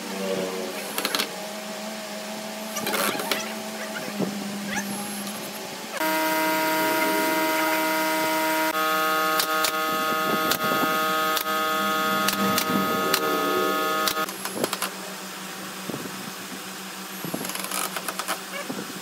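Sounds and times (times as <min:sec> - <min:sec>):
cordless drill motor running: 0:06.0 - 0:14.6
sharp clicks: 0:14.0 - 0:14.9.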